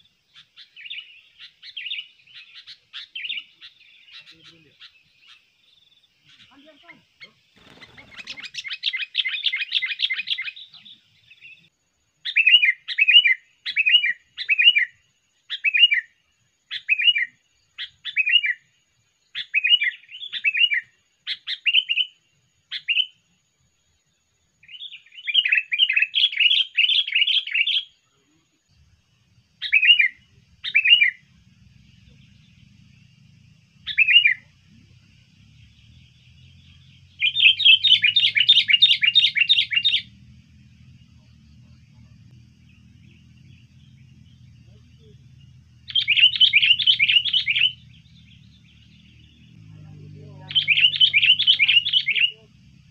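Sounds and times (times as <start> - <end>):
bulbul scolding chatter: 6.4 - 8.7, 29.2 - 52.9.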